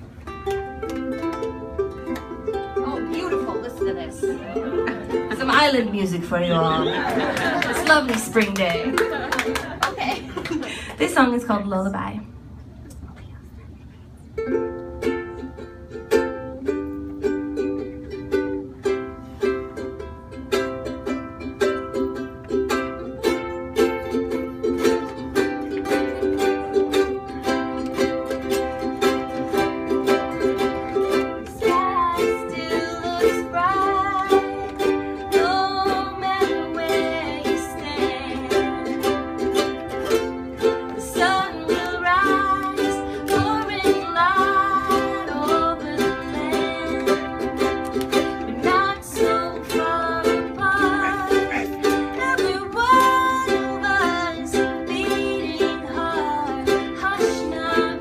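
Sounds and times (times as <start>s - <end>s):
ukuleles strumming: 0.0s - 11.4s, 13.7s - 58.0s
person singing: 41.0s - 58.0s.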